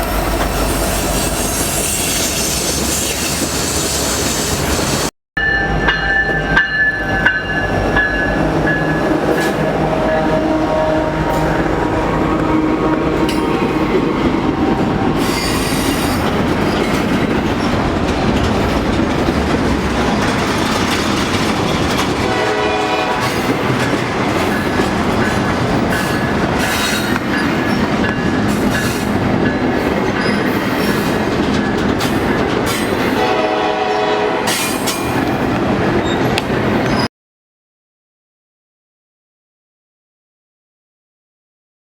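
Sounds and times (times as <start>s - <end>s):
train rumbling on rails: 0.0s - 37.1s
train horn blasts: 9.4s - 15.2s, 22.2s - 23.6s, 33.2s - 34.6s.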